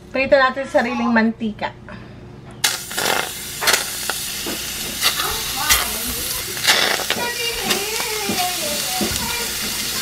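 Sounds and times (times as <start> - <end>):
steady sizzle: 2.6 - 10.0.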